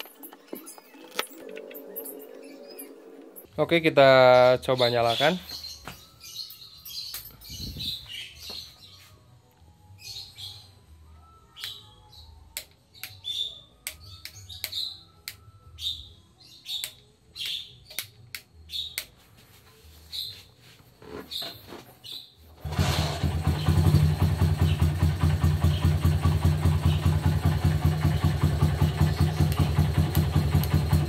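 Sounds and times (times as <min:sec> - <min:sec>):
small birds chirping: 0:04.3 - 0:09.2, 0:09.9 - 0:19.2, 0:23.4 - 0:31.0.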